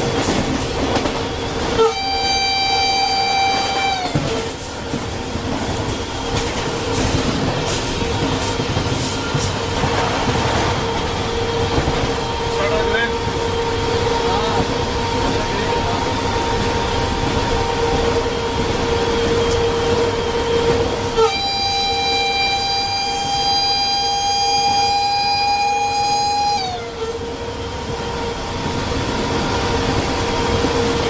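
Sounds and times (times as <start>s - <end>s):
electric locomotive running whine: 0.0s - 31.0s
locomotive horn blast: 1.6s - 4.7s, 10.4s - 31.0s.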